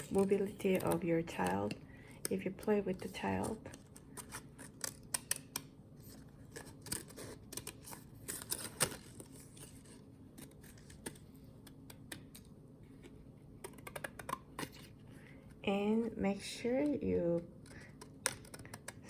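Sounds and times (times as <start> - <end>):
scissors snipping paper: 17.6 - 19.0.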